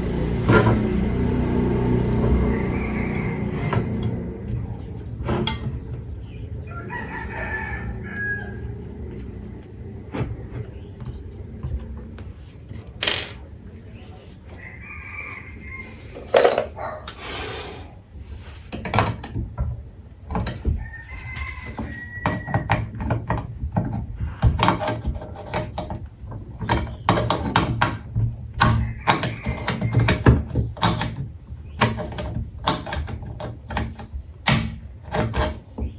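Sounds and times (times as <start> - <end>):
knocks taps and clatter: 18.7 - 35.9.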